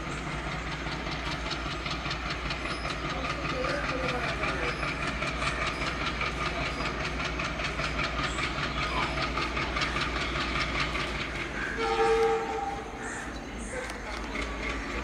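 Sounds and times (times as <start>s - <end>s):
train rumble and hiss: 0.0s - 15.0s
train wheels clicking over joints: 0.0s - 15.0s
loud train horn: 11.6s - 13.0s.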